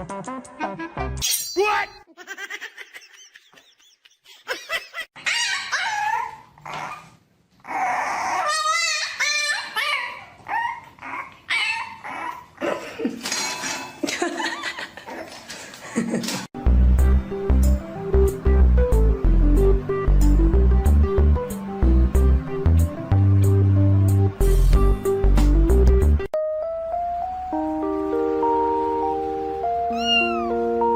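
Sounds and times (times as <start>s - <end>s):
dogs barking and whining: 4.6s - 13.0s, 29.9s - 30.7s.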